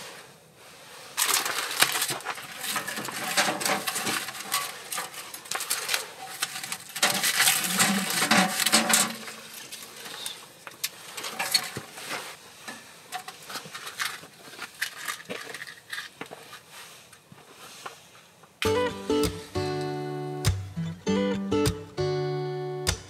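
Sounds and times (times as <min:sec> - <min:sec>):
wood shavings rustling: 0:00.0 - 0:18.1
kindling clattering: 0:01.2 - 0:16.6.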